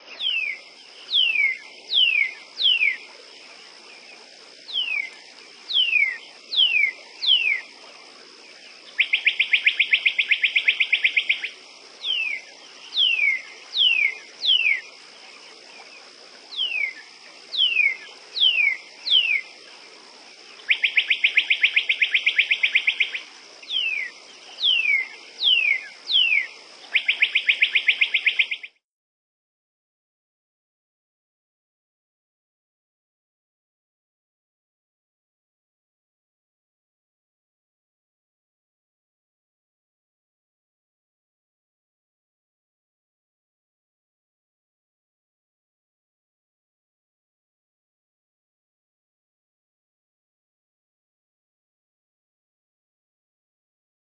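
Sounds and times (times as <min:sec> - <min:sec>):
buzzy bird trills: 0:20.7 - 0:28.8.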